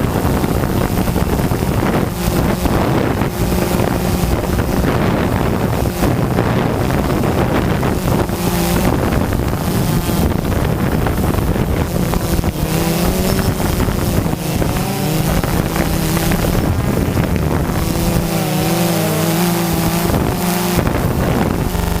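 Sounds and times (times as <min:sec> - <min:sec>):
drone propellers buzzing: 0:00.0 - 0:22.0
wind on microphone: 0:00.0 - 0:22.0.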